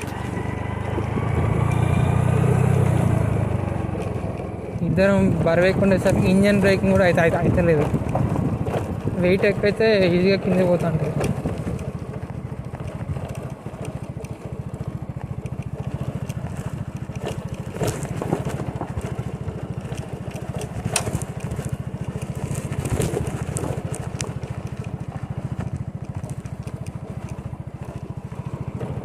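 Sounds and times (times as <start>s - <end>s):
small motorcycle engine: 0.0s - 29.0s
bike jolting knocks and crackles: 16.4s - 24.2s.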